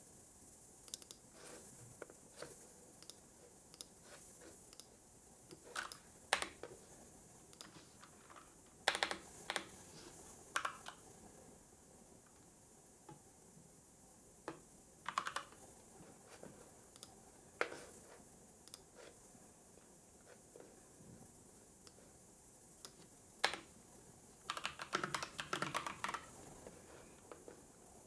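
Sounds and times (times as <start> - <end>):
faint steady hiss: 0.0 - 28.0
typing on computer keyboard: 8.8 - 9.7, 10.6 - 11.0, 15.1 - 15.6, 22.9 - 23.7, 24.4 - 26.4.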